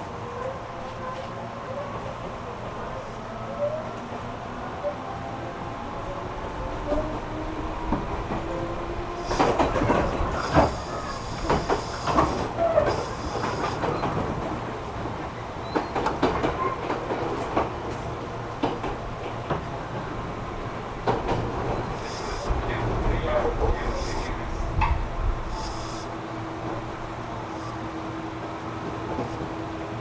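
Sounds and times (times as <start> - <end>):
train rumble: 0.0 - 30.0
wheel clacks over rail joints: 9.2 - 14.7, 15.6 - 20.1, 21.0 - 24.2
high hiss: 21.9 - 22.5, 25.4 - 26.1.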